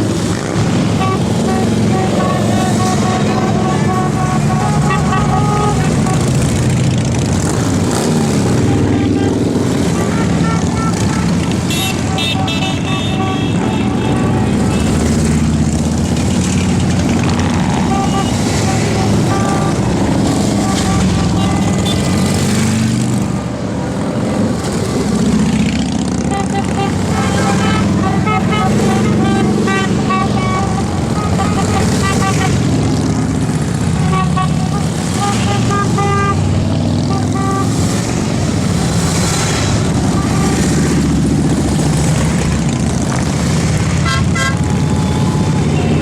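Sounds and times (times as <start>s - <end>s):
motorcycle engines droning: 0.0s - 46.0s
horn beeps: 0.9s - 6.4s, 8.6s - 15.2s, 17.1s - 22.3s, 26.3s - 32.8s, 34.0s - 37.8s, 44.0s - 46.0s.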